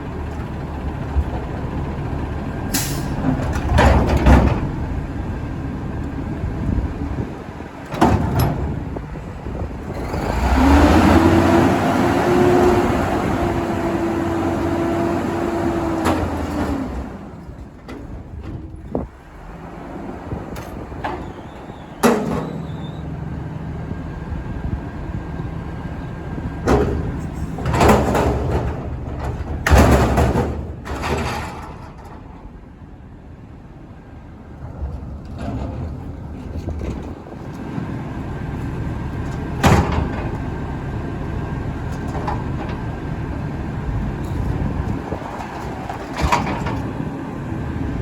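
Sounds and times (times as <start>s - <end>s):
garbage truck diesel engine: 0.0s - 48.0s
loud hissing and clanking bursts: 2.7s - 3.2s.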